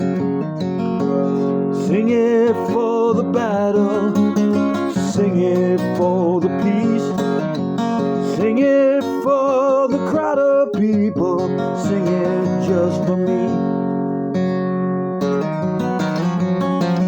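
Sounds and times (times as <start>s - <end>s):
acoustic guitar strumming: 0.0s - 17.0s
person singing: 1.1s - 13.9s.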